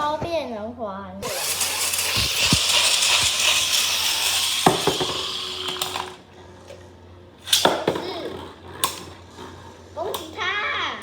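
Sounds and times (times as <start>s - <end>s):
spinning tops clashing: 1.2s - 6.2s
spinning tops whirring and rattling: 1.2s - 6.8s, 7.4s - 11.0s.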